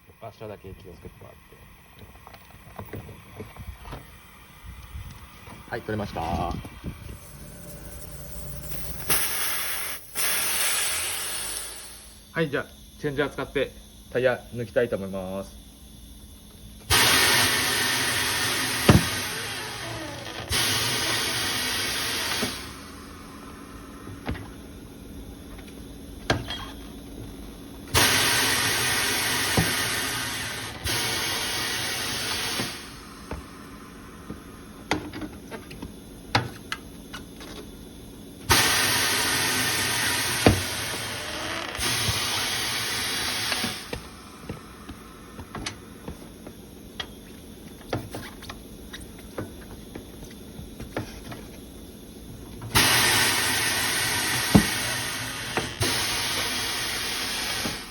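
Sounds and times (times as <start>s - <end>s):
compressed air hissing: 4.2s - 12.3s, 16.8s - 34.9s, 38.4s - 46.5s, 52.7s - 57.9s.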